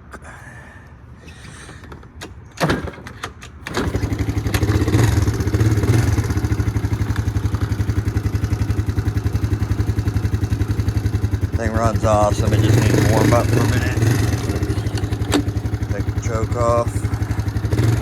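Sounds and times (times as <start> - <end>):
small engine high idle: 3.8 - 18.0
starter clicks and thud: 14.3 - 15.7.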